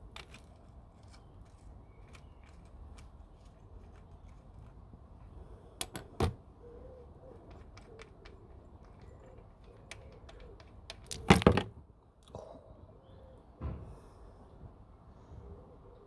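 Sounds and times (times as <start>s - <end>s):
clicks and taps of tools: 7.4s - 11.6s.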